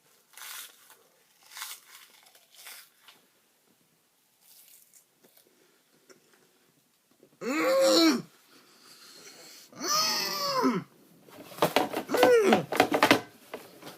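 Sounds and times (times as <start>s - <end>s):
seaweed snack crunching: 0.1s - 3.2s, 4.4s - 5.6s.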